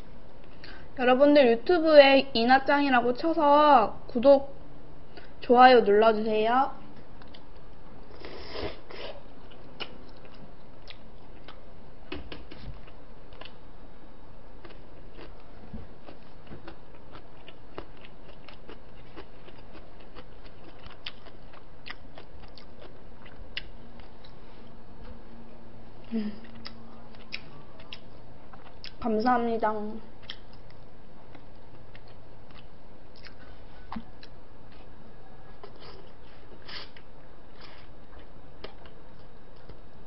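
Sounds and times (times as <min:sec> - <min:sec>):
person chewing: 0:07.2 - 0:11.6, 0:14.6 - 0:24.4, 0:26.0 - 0:29.0, 0:30.2 - 0:34.9, 0:35.6 - 0:39.8.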